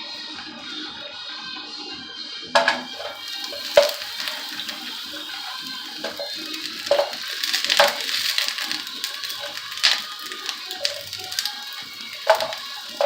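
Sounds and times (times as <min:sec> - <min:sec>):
background music: 0:00.0 - 0:13.0
plastic food pack crinkling: 0:02.9 - 0:13.0.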